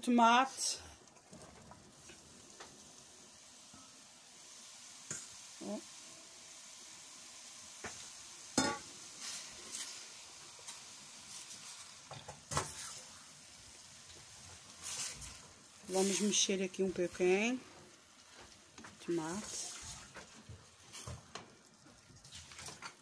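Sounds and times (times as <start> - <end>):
tomatoes sizzling in a saucepan: 0.0 - 23.0
spatula stirring: 14.7 - 23.0.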